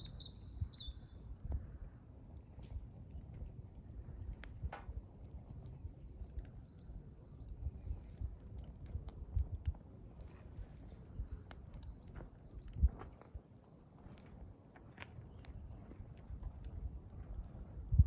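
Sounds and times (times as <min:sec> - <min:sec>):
songbird singing: 0:00.0 - 0:01.4, 0:05.4 - 0:08.2, 0:10.6 - 0:14.0
wood fire crackling: 0:00.0 - 0:18.0.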